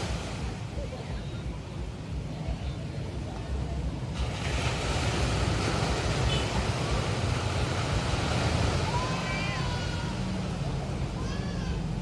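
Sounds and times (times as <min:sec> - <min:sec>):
waves washing onto shore: 0:00.0 - 0:12.0
breaking wave hiss: 0:04.1 - 0:10.6.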